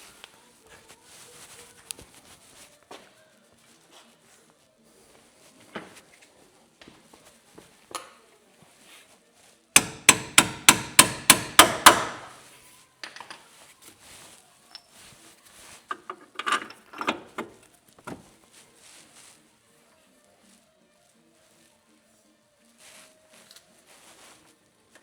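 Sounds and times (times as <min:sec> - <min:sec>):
hammer striking metal: 0:09.8 - 0:12.4
tools clinking and knocking: 0:09.8 - 0:12.4, 0:13.0 - 0:13.5, 0:14.7 - 0:15.0, 0:15.9 - 0:18.3.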